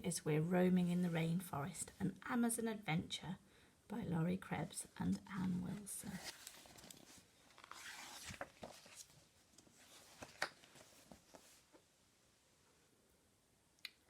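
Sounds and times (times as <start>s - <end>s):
book pages rustling: 5.1s - 11.9s.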